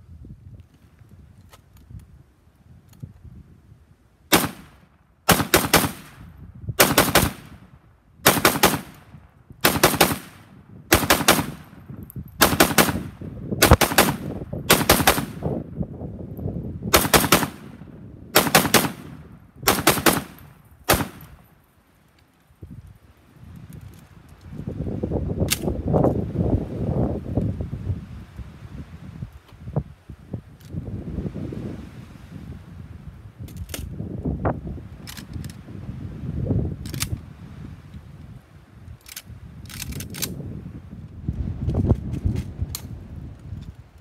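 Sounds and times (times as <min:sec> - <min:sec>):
wind rumbling on microphone: 0:00.0 - 0:21.6, 0:22.4 - 0:44.0
rifle rapid shots: 0:04.3 - 0:06.2, 0:06.8 - 0:07.6, 0:08.2 - 0:09.0, 0:09.6 - 0:11.7, 0:12.4 - 0:15.4, 0:16.9 - 0:17.7, 0:18.4 - 0:19.1, 0:19.7 - 0:21.3.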